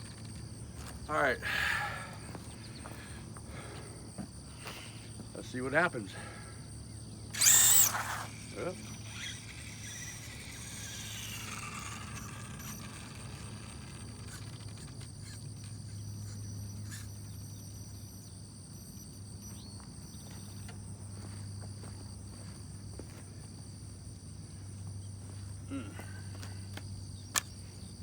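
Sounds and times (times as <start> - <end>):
constant low hum: 0.0 - 28.0
insects droning: 0.0 - 28.0
falling whine: 7.2 - 21.4.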